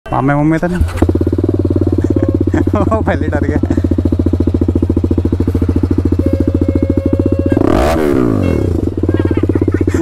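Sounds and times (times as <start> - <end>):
motorcycle engine idling: 0.1 - 10.0
engine throttle blip: 5.1 - 9.1.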